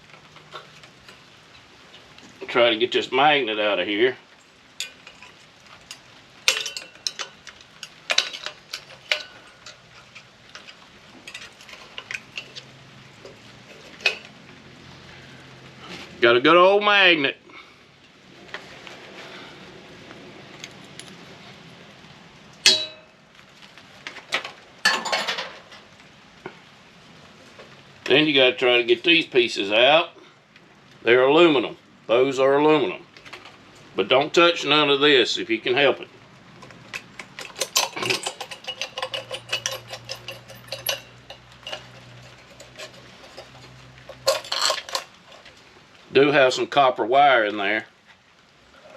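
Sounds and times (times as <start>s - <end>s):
low steady hum: 0.0s - 23.6s
metal parts clattering and rattling: 4.8s - 14.4s, 24.1s - 25.9s, 36.6s - 45.6s
metallic clang with ring: 22.6s - 23.2s
metallic clicks of hand tools: 36.9s - 45.5s.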